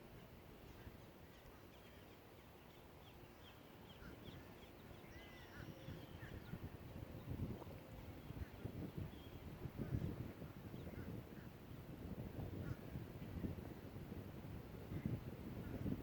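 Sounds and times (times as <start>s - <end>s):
faint bird chirps: 0.6s - 6.6s.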